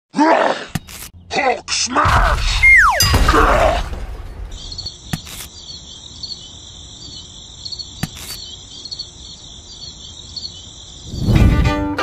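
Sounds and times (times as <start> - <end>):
crickets chirping: 4.0 - 11.7.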